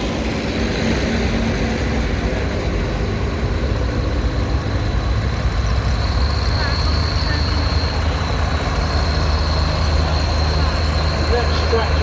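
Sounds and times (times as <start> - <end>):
tractor engines running: 0.0 - 12.0.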